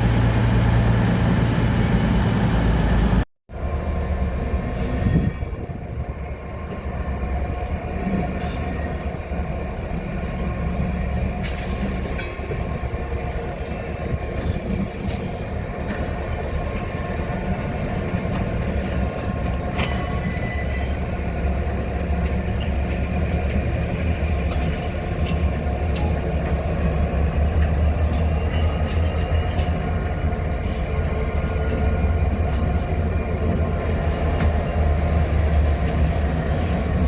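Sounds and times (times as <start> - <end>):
train rumbling past: 0.0 - 37.0
high-pitched wheel squeals: 7.9 - 17.6, 18.4 - 29.7, 31.7 - 37.0.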